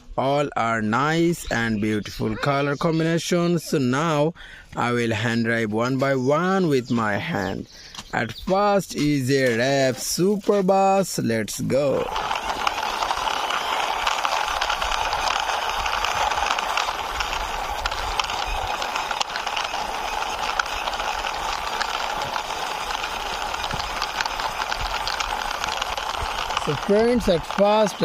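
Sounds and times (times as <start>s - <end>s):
toy wheels rolling and rattling: 8.5s - 28.0s.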